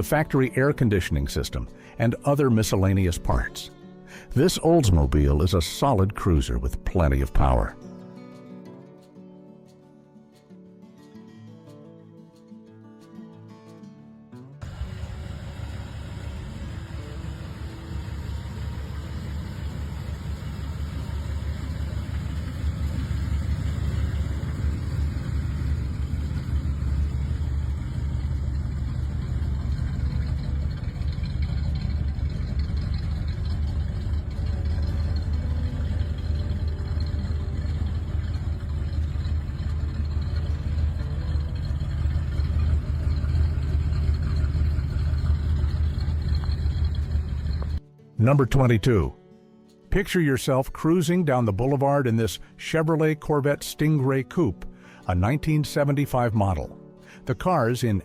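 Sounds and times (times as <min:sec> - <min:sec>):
car engine idling: 0:14.6 - 0:47.8.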